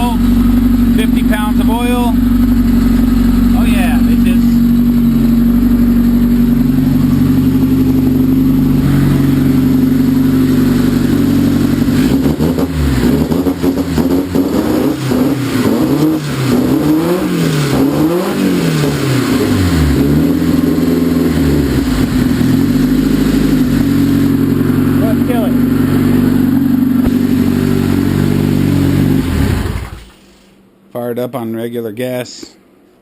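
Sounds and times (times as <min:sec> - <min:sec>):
car engine idling and revving: 0:00.0 - 0:30.2.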